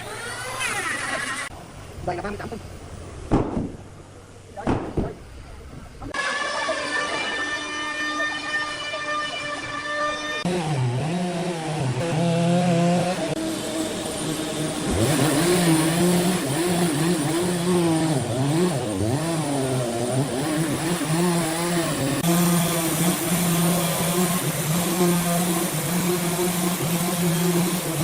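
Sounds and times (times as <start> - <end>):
engine revving: 6.1 - 28.0.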